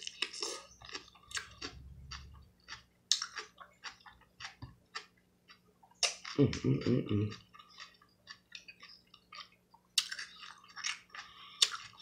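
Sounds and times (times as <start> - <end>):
person chewing with mouth smacks: 0.0 - 12.0.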